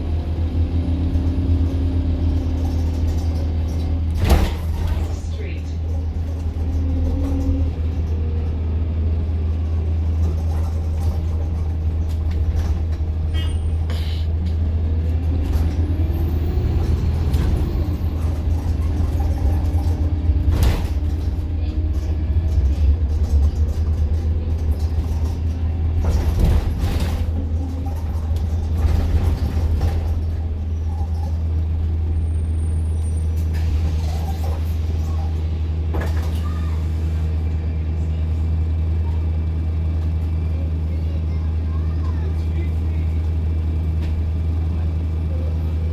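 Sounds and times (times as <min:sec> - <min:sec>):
bus engine and road drone: 0:00.0 - 0:45.9
bodywork knocks and rattles: 0:16.6 - 0:31.5.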